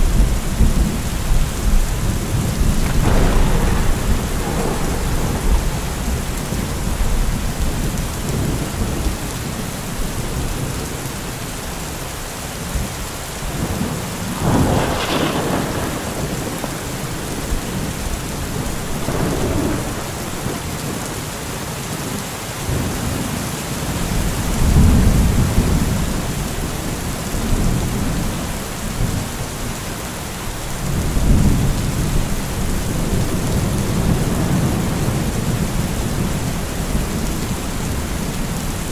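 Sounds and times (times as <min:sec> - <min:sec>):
thunder rumbling: 0:00.0 - 0:11.0, 0:13.4 - 0:21.3, 0:30.7 - 0:38.9
heavy rain hissing: 0:00.0 - 0:38.9.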